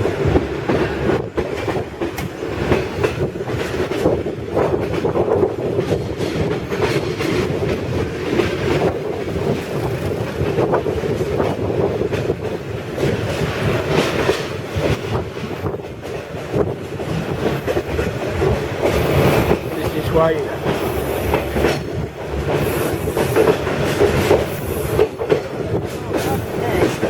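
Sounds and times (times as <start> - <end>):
train clatter over rails: 0.0 - 27.0
train wheels rumbling: 0.0 - 27.0.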